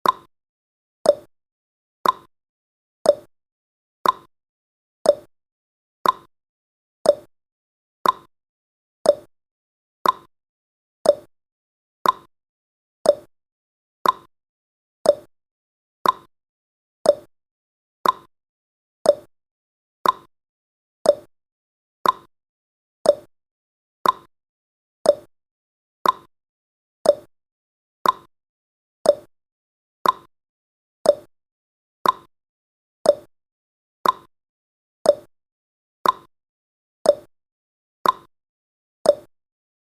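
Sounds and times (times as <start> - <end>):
timer ticking: 0.0 - 0.3, 1.1 - 1.3, 2.0 - 2.3, 3.1 - 3.3, 4.0 - 4.3, 5.1 - 5.3, 6.0 - 6.3, 7.1 - 7.3, 8.0 - 8.3, 9.0 - 9.3, 10.0 - 10.3, 11.0 - 11.3, 12.0 - 12.3, 13.0 - 13.3, 14.0 - 14.3, 15.0 - 15.3, 16.0 - 16.3, 17.0 - 17.3, 18.0 - 18.3, 19.0 - 19.3, 20.0 - 20.3, 21.0 - 21.3, 22.0 - 22.3, 23.0 - 23.3, 24.0 - 24.3, 25.0 - 25.3, 26.0 - 26.3, 27.0 - 27.3, 28.0 - 28.3, 29.0 - 29.3, 30.0 - 30.3, 31.0 - 31.3, 32.0 - 32.3, 33.0 - 33.3, 34.0 - 34.3, 35.1 - 35.3, 36.0 - 36.3, 37.1 - 37.3, 38.0 - 38.3, 39.1 - 39.3.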